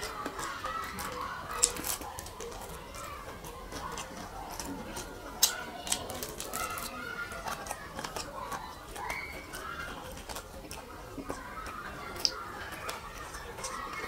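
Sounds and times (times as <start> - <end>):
chewing with mouth smacks: 0.0 - 14.0
crisp clicks: 0.0 - 14.0.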